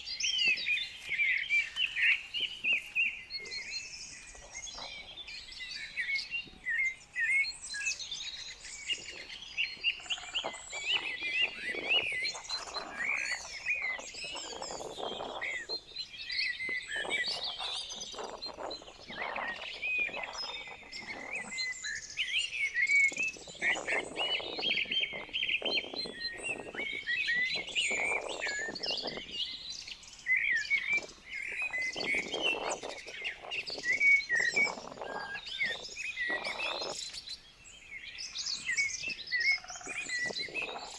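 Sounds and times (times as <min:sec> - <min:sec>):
low rustling noises: 0:00.0 - 0:03.6
small birds chirping and singing: 0:00.0 - 0:40.9.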